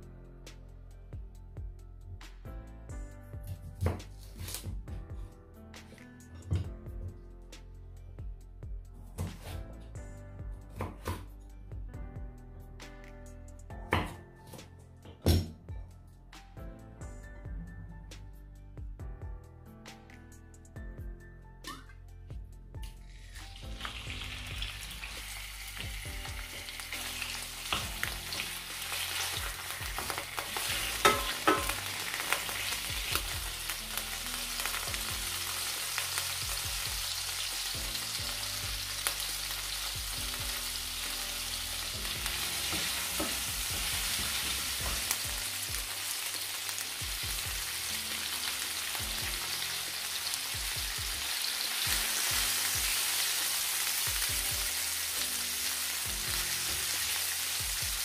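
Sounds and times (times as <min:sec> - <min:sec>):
prawns sizzling in oil: 0:23.1 - 0:58.0.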